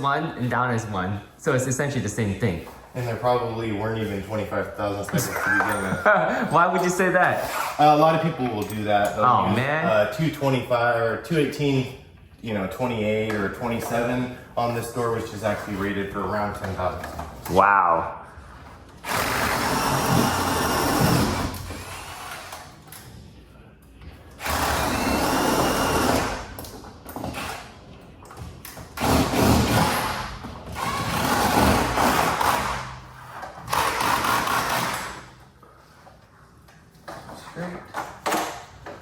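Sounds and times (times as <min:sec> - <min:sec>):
power tool running: 0:19.0 - 0:22.6, 0:24.4 - 0:26.6, 0:29.0 - 0:32.9, 0:33.7 - 0:35.3.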